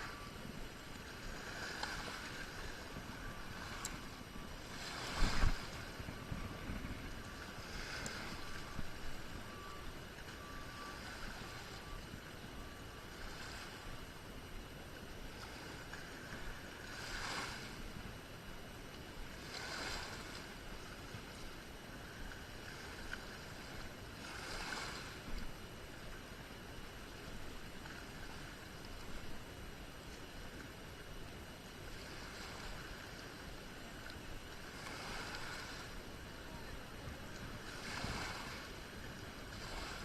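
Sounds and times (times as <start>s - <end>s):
wind noise: 0.0s - 10.0s, 37.0s - 40.0s
faint beeping tone: 0.0s - 14.8s.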